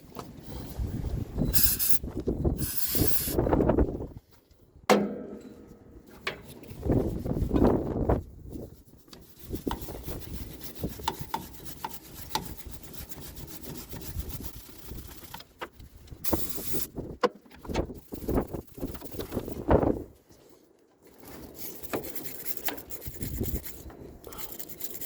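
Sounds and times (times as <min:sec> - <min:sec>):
wire brush scrubbing metal: 0:01.6 - 0:02.0, 0:02.6 - 0:03.4, 0:06.4 - 0:16.9, 0:17.9 - 0:19.7, 0:21.2 - 0:25.0
sharp knock: 0:04.9 - 0:05.8.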